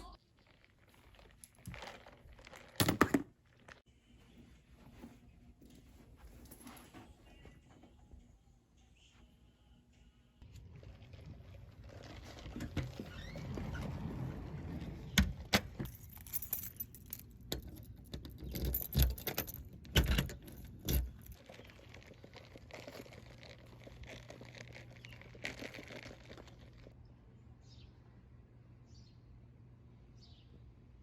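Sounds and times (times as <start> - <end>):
rustling handling noise: 0.2 - 8.0, 10.4 - 26.9.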